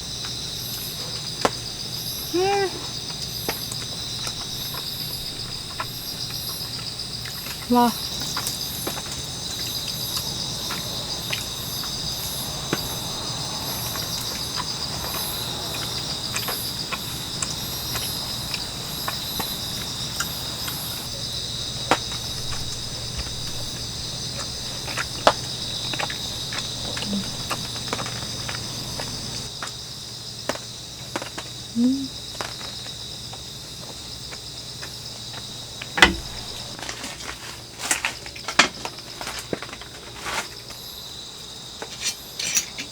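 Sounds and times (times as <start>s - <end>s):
insects chirping: 0.0s - 42.9s
sharp clicks and knocks: 36.0s - 36.8s.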